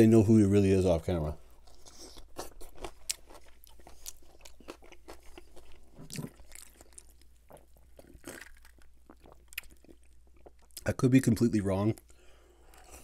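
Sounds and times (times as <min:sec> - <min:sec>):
wet crunchy chewing: 0:01.6 - 0:10.8.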